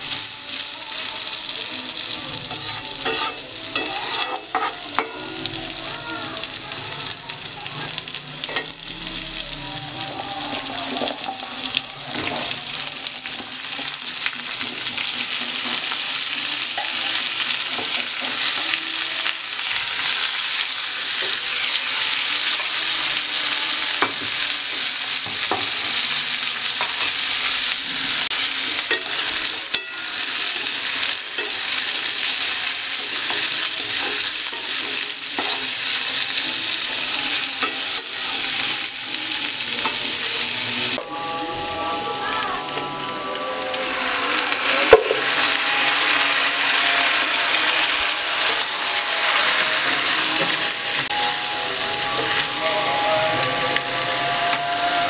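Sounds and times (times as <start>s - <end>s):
food sizzling in oil: 0.0s - 55.0s
metal spatula scraping pan: 2.5s - 5.3s.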